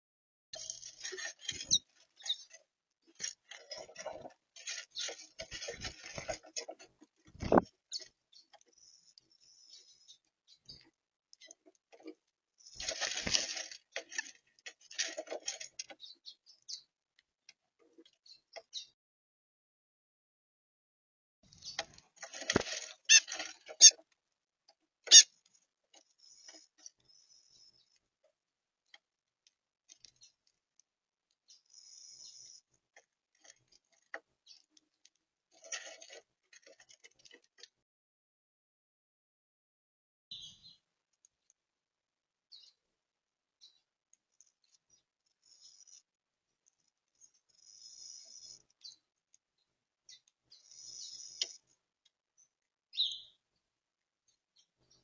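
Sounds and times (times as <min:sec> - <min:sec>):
birds pecking and scratching: 0:00.6 - 0:18.9, 0:21.5 - 0:37.8, 0:43.6 - 0:55.0
high bird chirps: 0:40.3 - 0:40.8, 0:52.9 - 0:53.4.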